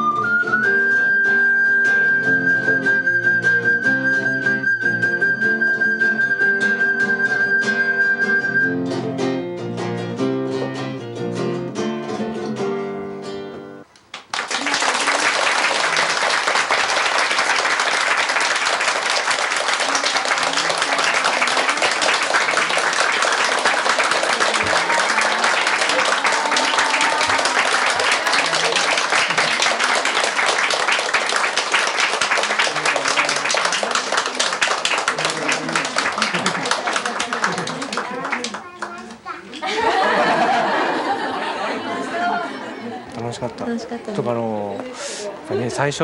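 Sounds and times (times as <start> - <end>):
plucked acoustic guitar piece: 6.4 - 13.9
audience applause: 14.1 - 43.0.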